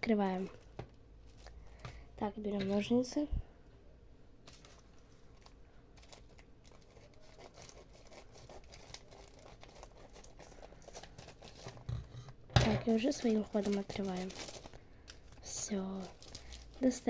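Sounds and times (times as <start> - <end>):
cardboard packaging crinkling: 4.5 - 11.9, 12.8 - 17.0.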